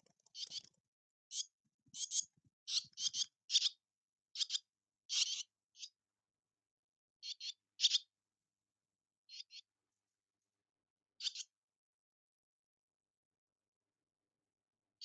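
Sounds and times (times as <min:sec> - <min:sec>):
bird chirping raspily: 0:00.0 - 0:06.0, 0:07.2 - 0:08.2, 0:09.3 - 0:09.7, 0:11.2 - 0:11.6.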